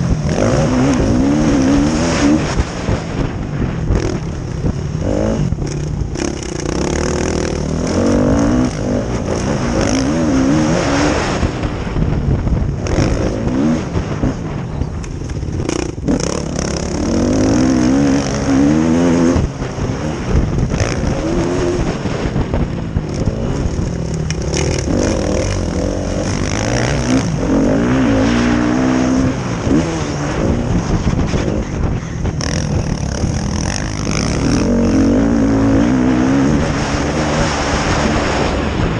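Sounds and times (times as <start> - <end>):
motorbike engines revving: 0.0 - 38.9.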